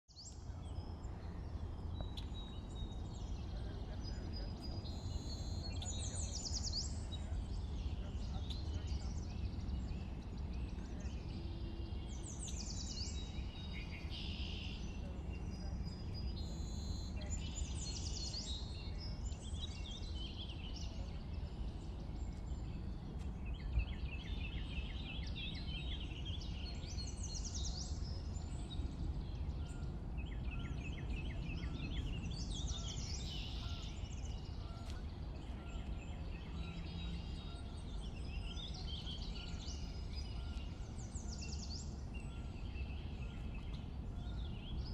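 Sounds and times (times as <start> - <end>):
songbirds singing: 0.0 - 44.9
steady low rumble: 0.3 - 44.9.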